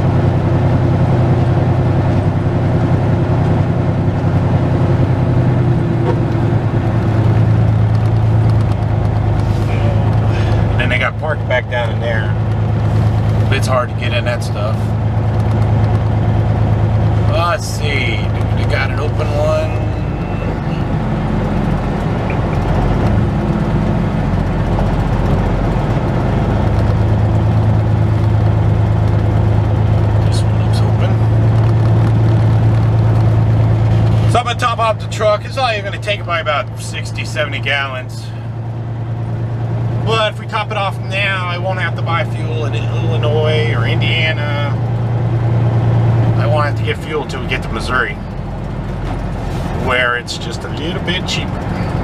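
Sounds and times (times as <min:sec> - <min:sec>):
diesel truck engine humming: 0:00.0 - 0:52.0.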